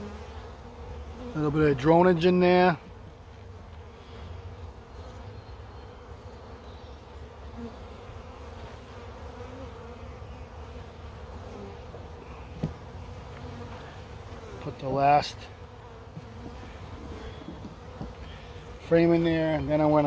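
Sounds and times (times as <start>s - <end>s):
bee swarm buzzing: 0.0s - 20.0s.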